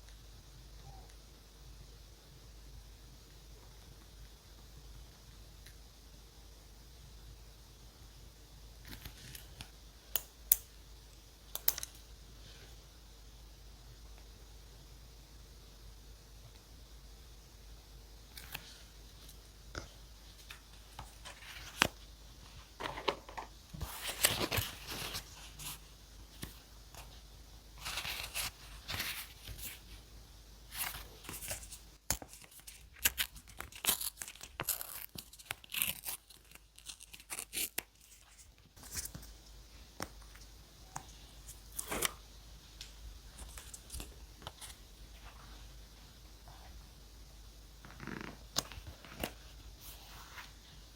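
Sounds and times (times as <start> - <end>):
paper tearing and crinkling: 23.8 - 25.8, 30.7 - 39.1.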